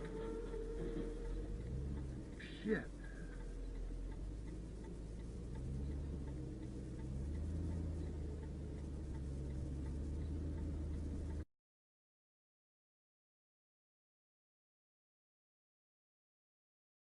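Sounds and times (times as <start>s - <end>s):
faint regular ticking: 0.0s - 11.4s
vehicle engine drone: 0.0s - 11.5s.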